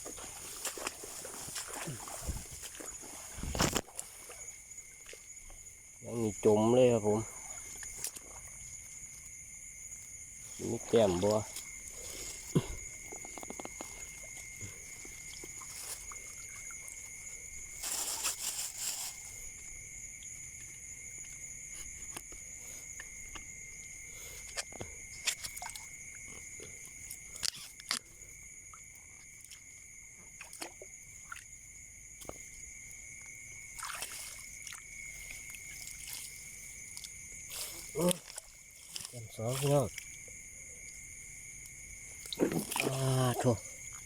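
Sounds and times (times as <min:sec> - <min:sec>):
rustling through vegetation: 0:00.0 - 0:05.4, 0:15.3 - 0:19.6, 0:34.0 - 0:40.2
insects droning: 0:00.0 - 0:44.0.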